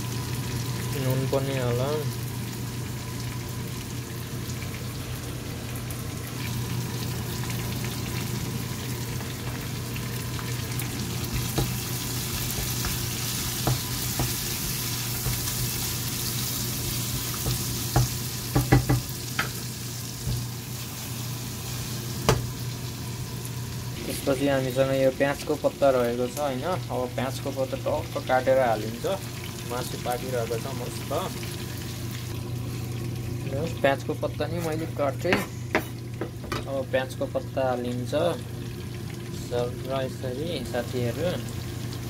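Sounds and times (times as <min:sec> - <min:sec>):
chicken sizzling in a frying pan: 0:00.0 - 0:42.0
spatula knocking against pan: 0:13.6 - 0:15.7, 0:17.4 - 0:19.6.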